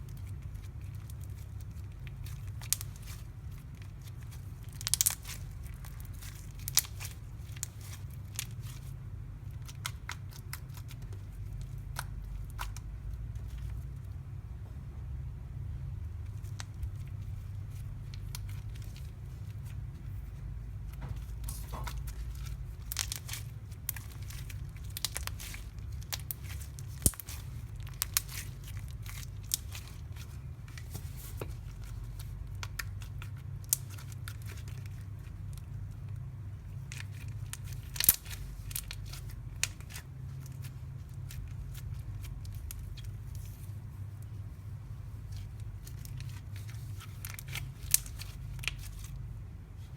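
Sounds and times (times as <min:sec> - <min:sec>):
steady low hum: 0:00.0 - 0:49.9
slime crackling and clicking: 0:00.2 - 0:08.7, 0:21.0 - 0:35.7, 0:36.8 - 0:43.5.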